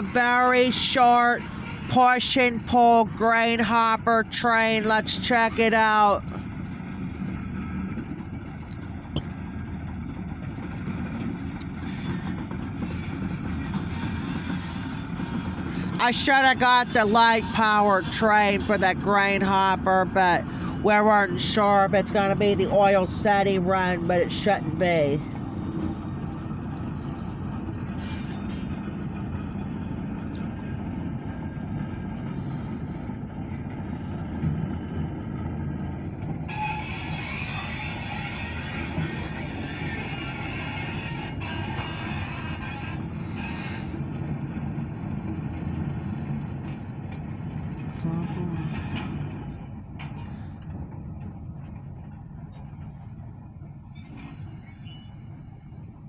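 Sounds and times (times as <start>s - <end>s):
freight train rumbling on track: 0.0s - 56.0s
high-pitched squeals: 10.9s - 18.8s, 36.5s - 44.0s, 53.6s - 56.0s.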